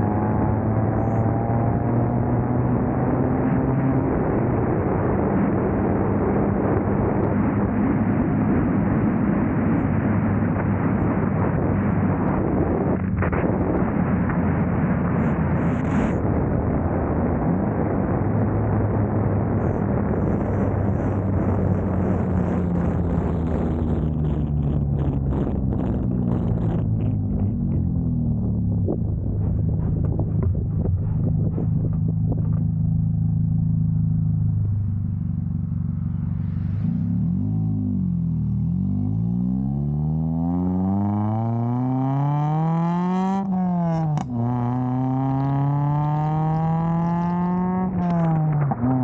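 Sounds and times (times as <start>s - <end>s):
road and wind noise: 0.0s - 49.0s
car engine running: 19.6s - 37.5s.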